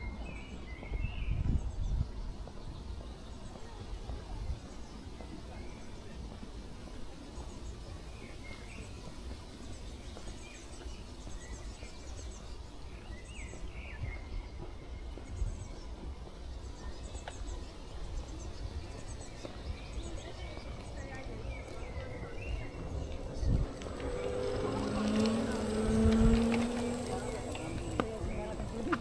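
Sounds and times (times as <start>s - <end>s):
small birds chirping: 0.0s - 29.0s
low background rumble: 18.2s - 29.0s.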